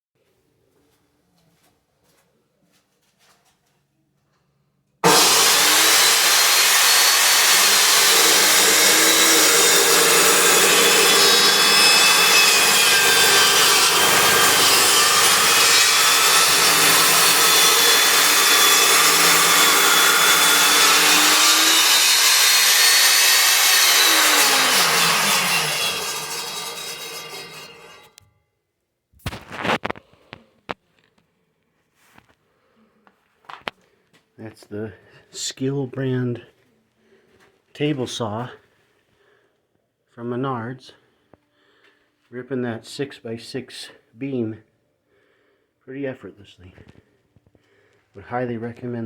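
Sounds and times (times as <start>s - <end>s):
table saw ripping wood: 5.0s - 28.2s, 29.2s - 30.0s.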